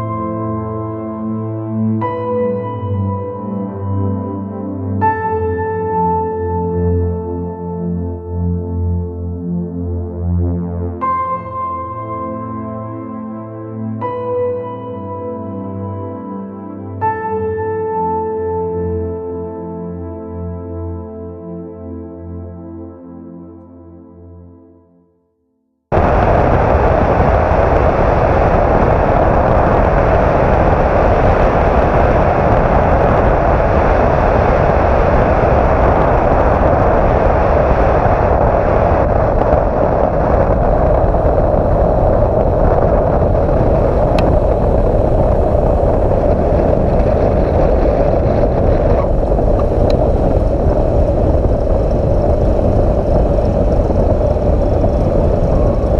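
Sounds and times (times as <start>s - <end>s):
airplane engine and propeller: 25.9s - 55.9s
wind rushing: 25.9s - 55.9s.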